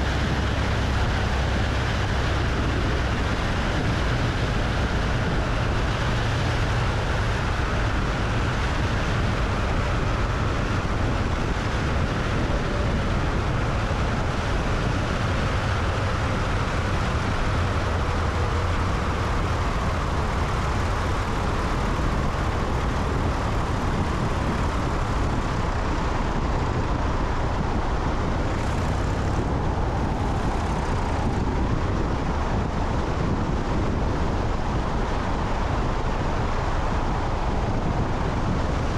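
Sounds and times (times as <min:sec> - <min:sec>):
propeller plane engine: 0:00.0 - 0:38.9
wind noise on microphone: 0:00.0 - 0:38.9.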